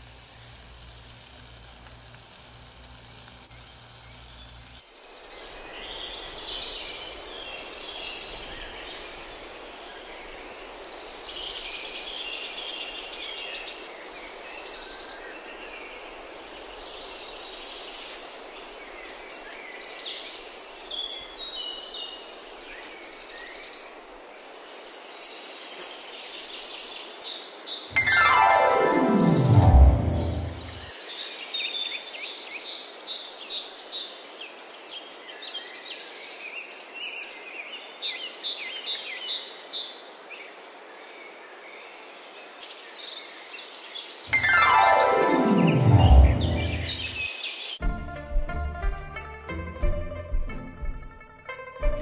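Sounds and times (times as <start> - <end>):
oil sizzling: 0.0 - 4.7
steady soft hiss: 0.0 - 19.1
swoosh falling in pitch: 27.9 - 30.9, 44.3 - 47.3.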